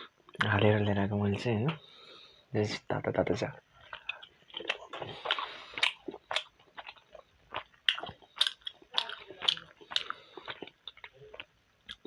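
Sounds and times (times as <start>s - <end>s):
person chewing food: 3.7s - 12.0s
mouth clicks: 3.9s - 7.0s.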